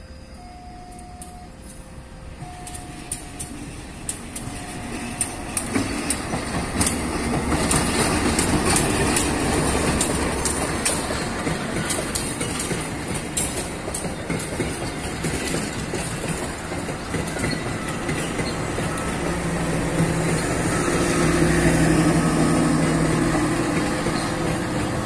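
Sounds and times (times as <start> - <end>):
two-tone signal: 0.0 - 3.7
diesel locomotive engine running: 0.0 - 25.0
wheels clicking over rail joints: 0.9 - 20.7, 21.4 - 25.0.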